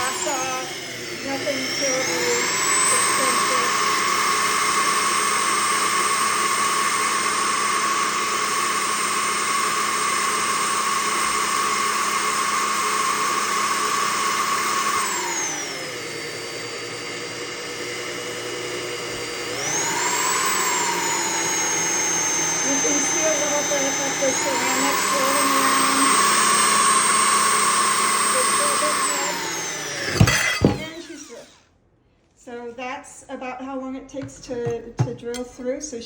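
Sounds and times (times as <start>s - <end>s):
electric drill drilling ceramic: 0.0s - 31.6s.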